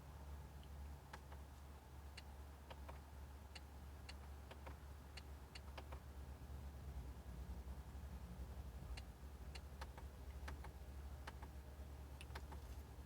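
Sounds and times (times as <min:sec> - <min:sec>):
low steady hum: 0:00.0 - 0:13.0
car control buttons clicking: 0:02.2 - 0:06.0, 0:09.0 - 0:11.6, 0:12.2 - 0:12.7.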